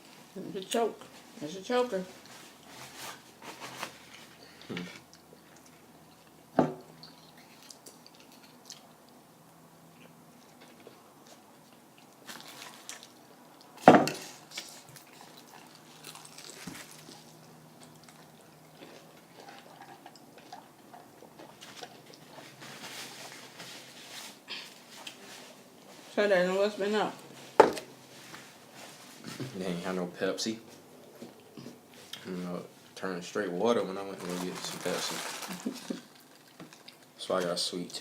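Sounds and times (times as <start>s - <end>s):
paper and containers rustling: 2.2s - 4.4s, 21.5s - 26.3s, 34.0s - 36.9s
chewing: 4.2s - 9.2s, 9.9s - 23.6s, 35.5s - 37.2s.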